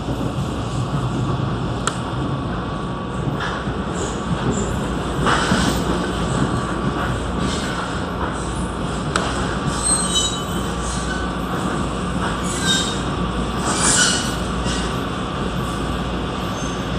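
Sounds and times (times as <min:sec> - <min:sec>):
train rumbling on rails: 0:00.0 - 0:16.9
wheel squeals: 0:09.7 - 0:11.3, 0:12.4 - 0:13.0.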